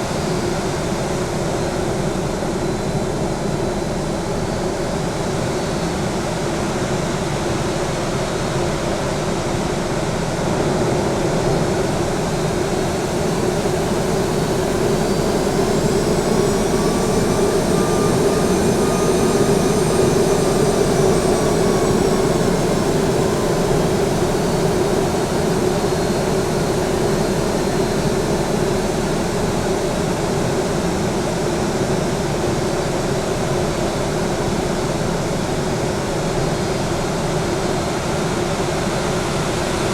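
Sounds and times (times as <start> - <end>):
turbine whine: 0.0 - 39.9
jet engines rushing: 10.5 - 29.6.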